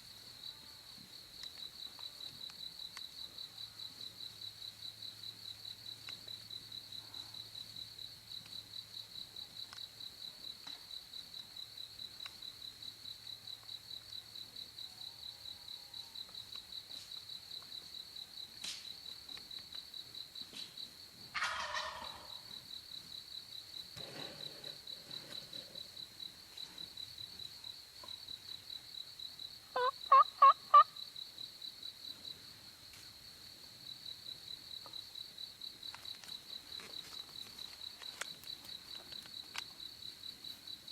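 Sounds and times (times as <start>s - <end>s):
cricket trill: 0.0s - 40.9s
turkey gobbling: 21.4s - 22.4s, 29.8s - 30.9s
person making turkey yelps: 29.8s - 30.9s.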